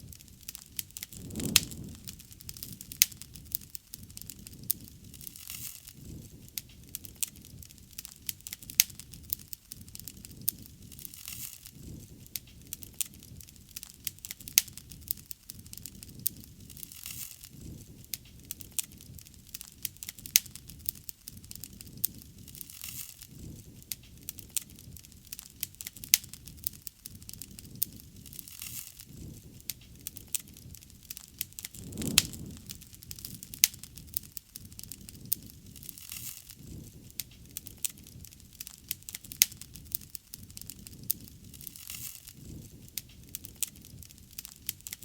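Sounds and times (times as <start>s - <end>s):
flames rumbling: 0.0s - 13.7s, 23.3s - 45.0s
wood fire crackling and popping: 0.0s - 45.0s.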